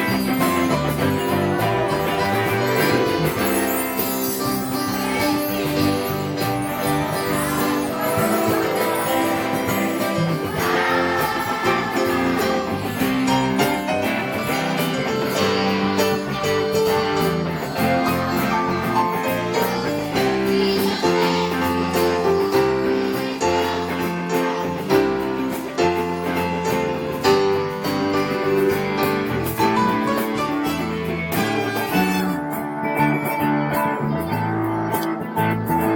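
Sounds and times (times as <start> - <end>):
children's choir singing: 0.0 - 32.3
tambourine jingle: 0.0 - 34.4
strummed guitars: 0.0 - 35.9.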